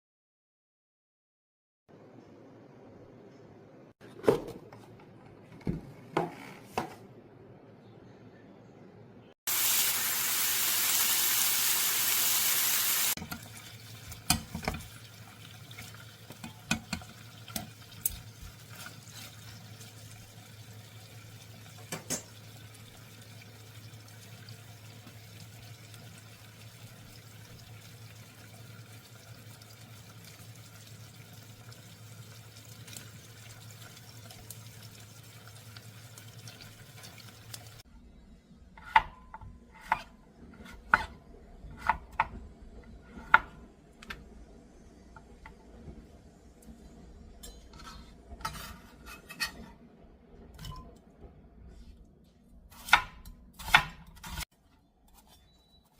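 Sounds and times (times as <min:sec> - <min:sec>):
water running from a tap: 0:09.5 - 0:37.8
kitchen knocks and clinks: 0:21.8 - 0:22.4.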